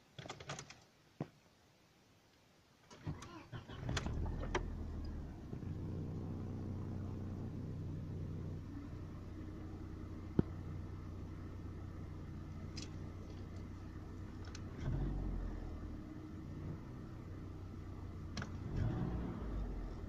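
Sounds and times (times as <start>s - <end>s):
car engine cranking: 2.9s - 6.4s
car engine idling: 3.9s - 20.0s.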